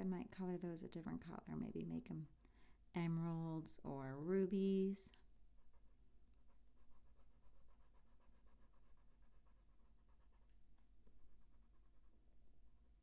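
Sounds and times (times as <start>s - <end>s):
pencil scratching on paper: 5.6s - 13.0s.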